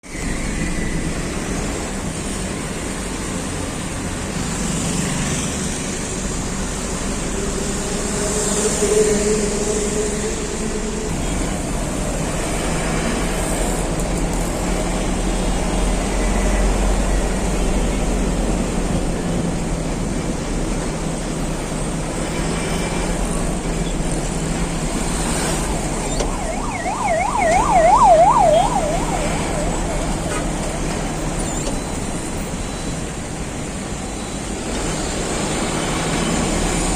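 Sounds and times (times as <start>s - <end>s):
siren wailing: 25.6s - 31.4s.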